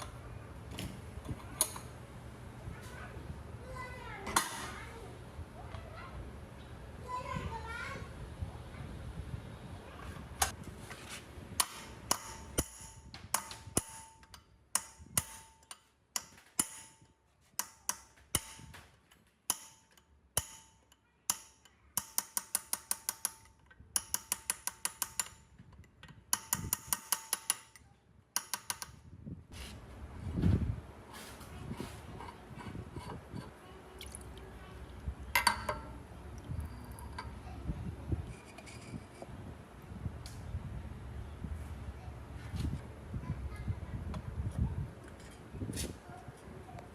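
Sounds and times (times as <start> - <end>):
hammer striking metal: 11.6 - 18.9, 19.5 - 25.4, 26.3 - 27.8.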